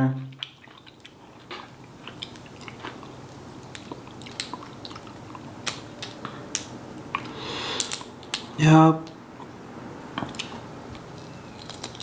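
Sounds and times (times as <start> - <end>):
person chewing food: 0.3 - 8.5, 9.4 - 12.0
wet mouth clicks and smacks: 3.7 - 8.5.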